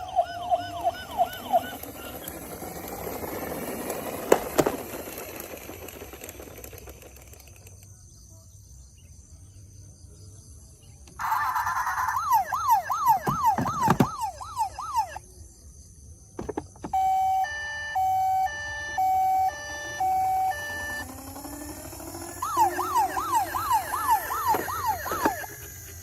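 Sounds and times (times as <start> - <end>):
toy electronic siren: 0.0 - 7.6, 11.1 - 15.2, 16.8 - 26.0.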